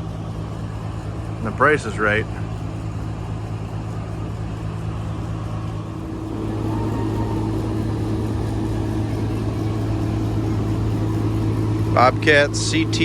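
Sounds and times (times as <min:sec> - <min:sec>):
engine humming: 0:00.0 - 0:13.0
steady tone: 0:05.9 - 0:12.0.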